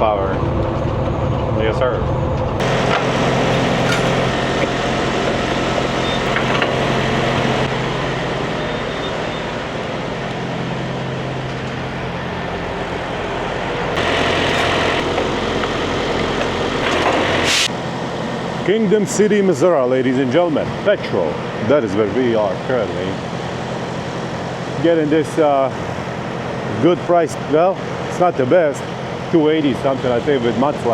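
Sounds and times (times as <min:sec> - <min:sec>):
road noise: 0:00.0 - 0:19.4
truck engine: 0:00.0 - 0:30.9.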